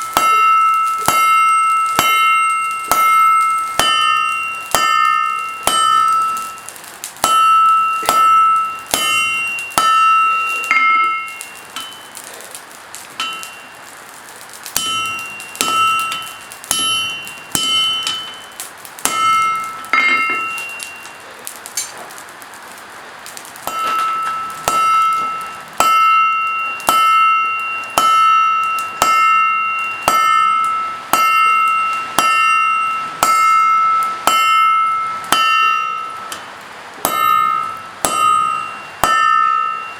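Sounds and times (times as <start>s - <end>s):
hammer blows on an anvil: 0.0s - 12.2s, 13.2s - 13.7s, 14.8s - 21.2s, 23.7s - 39.9s.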